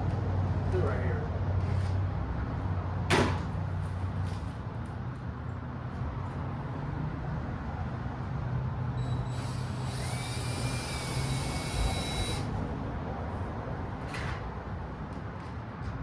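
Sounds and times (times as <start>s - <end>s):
power drill driving a screw: 9.0s - 12.5s.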